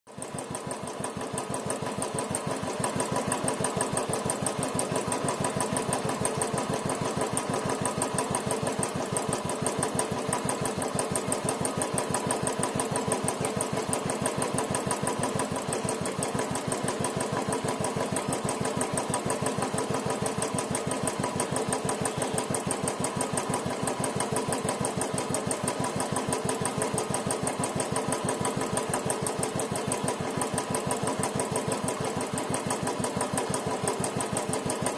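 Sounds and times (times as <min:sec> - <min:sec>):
motorcycle engine running: 0:00.1 - 0:34.9.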